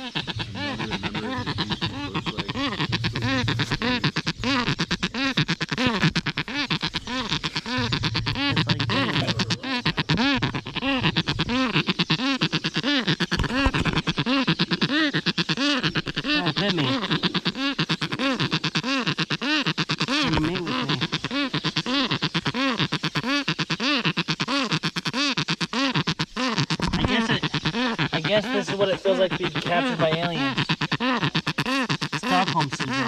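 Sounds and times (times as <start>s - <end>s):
bird harsh buzzy calls: 0.0s - 33.0s.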